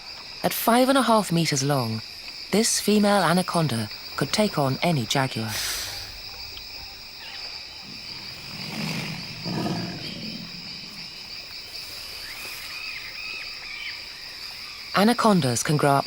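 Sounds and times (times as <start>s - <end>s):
crickets and insects chirring: 0.0s - 16.0s
low animal growl: 7.8s - 11.3s.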